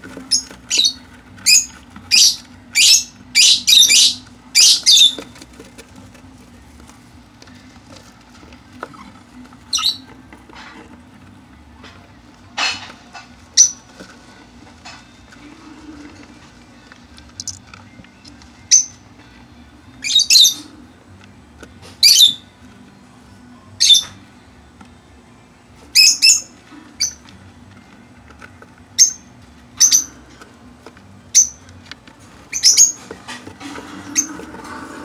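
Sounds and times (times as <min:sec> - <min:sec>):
lovebirds chirping: 0:00.3 - 0:05.3, 0:09.7 - 0:10.1, 0:17.4 - 0:17.6, 0:29.0 - 0:30.2, 0:32.5 - 0:33.0.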